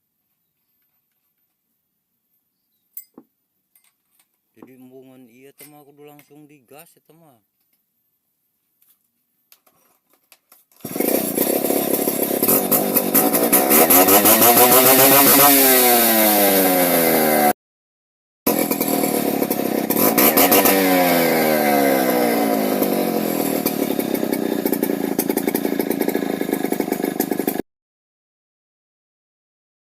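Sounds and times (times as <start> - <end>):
chainsaw engine revving: 10.8 - 17.6, 18.5 - 27.6.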